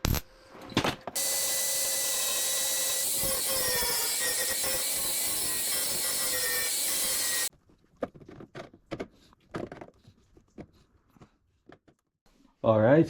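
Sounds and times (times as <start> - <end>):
angle grinder grinding metal: 1.2 - 7.5.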